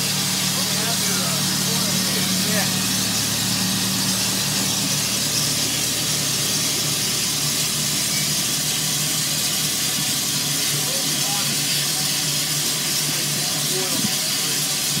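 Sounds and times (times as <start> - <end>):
low steady hum: 0.0 - 11.0
steam hissing: 0.0 - 15.0.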